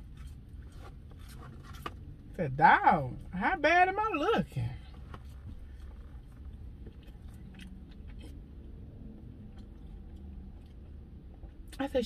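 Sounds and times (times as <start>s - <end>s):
person chewing fries: 0.0s - 2.2s, 5.8s - 11.8s
low rumble inside car: 0.0s - 12.0s.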